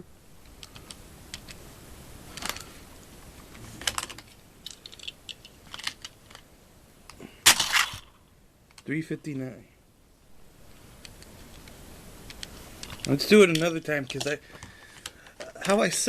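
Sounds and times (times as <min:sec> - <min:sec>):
plastic pieces clicking: 0:00.4 - 0:01.6, 0:03.5 - 0:06.5, 0:07.1 - 0:08.1, 0:11.0 - 0:16.0
loud plastic clacks: 0:03.8 - 0:06.4, 0:07.4 - 0:08.8.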